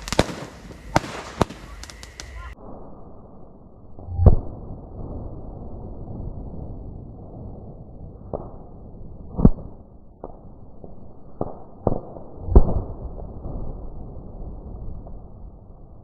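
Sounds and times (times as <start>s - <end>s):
fireworks bangs: 0.0s - 2.9s.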